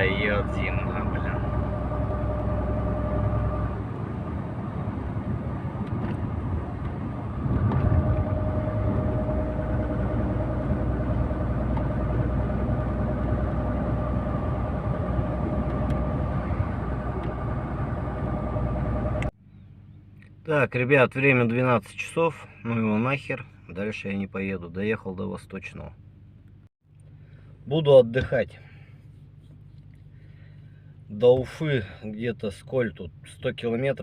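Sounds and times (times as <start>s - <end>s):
steady whine: 0.0s - 19.3s
truck engine and road noise: 0.0s - 21.7s.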